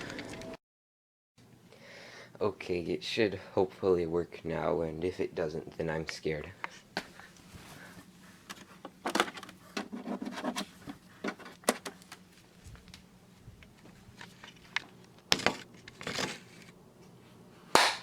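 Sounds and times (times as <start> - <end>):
faint steady hum: 1.4 - 18.0
clicks and knocks of handling: 8.5 - 12.2.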